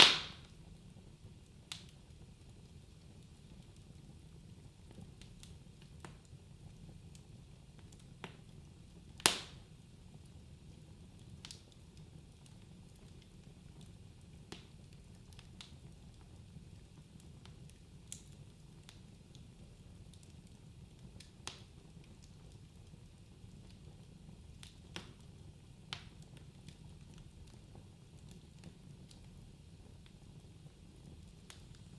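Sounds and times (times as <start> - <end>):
fire crackles and pops: 0.0 - 31.9.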